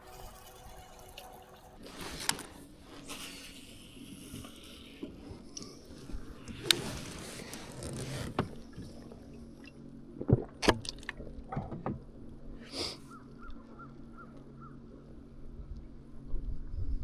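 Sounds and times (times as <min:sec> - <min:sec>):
water swishing: 0:00.0 - 0:13.2
steady low hum: 0:00.0 - 0:17.0.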